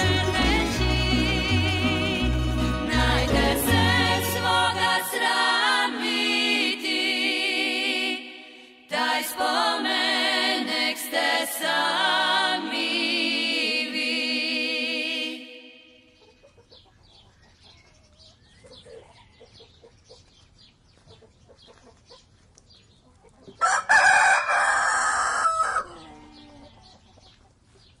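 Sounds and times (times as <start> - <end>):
chicken clucking: 16.0 - 28.0
rooster crowing: 23.6 - 26.7.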